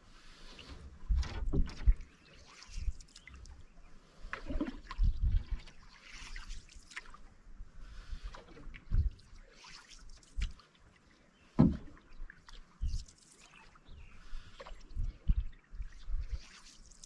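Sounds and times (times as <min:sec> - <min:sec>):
low thump of paddle: 0:11.6 - 0:12.0.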